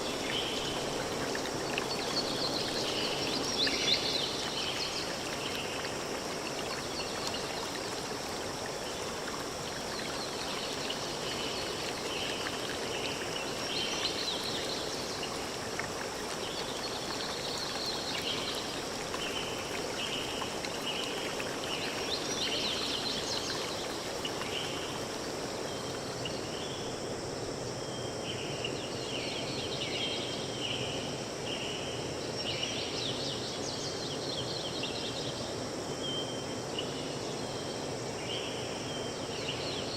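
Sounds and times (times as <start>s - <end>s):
stream flowing: 0.0s - 27.7s.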